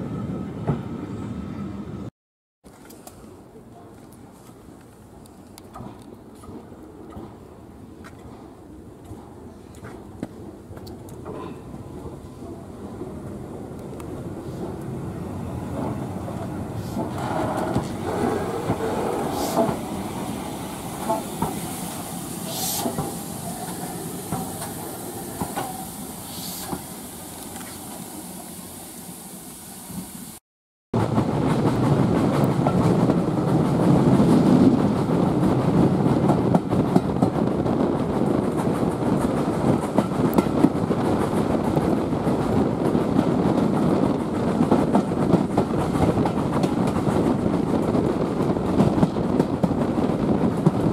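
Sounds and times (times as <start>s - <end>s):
wheels clicking over rail joints: 2.7s - 12.6s, 15.7s - 20.3s, 31.0s - 50.9s
steam train running: 11.4s - 30.4s.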